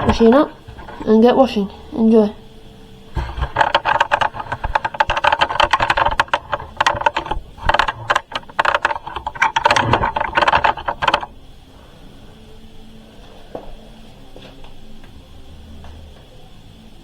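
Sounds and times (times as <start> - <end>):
laundry handling rattle: 3.1 - 11.4.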